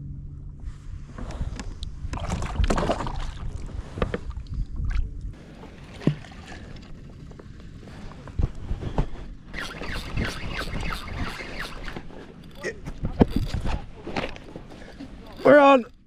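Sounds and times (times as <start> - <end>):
wind on microphone: 0.0 - 5.5, 6.1 - 14.7
water splashing around kayak: 2.0 - 8.0.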